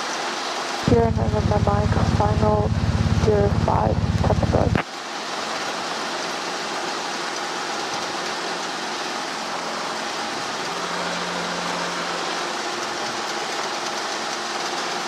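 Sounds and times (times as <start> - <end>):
faint low hum: 0.8 - 4.8
helicopter cabin noise: 0.8 - 4.8, 9.6 - 13.8.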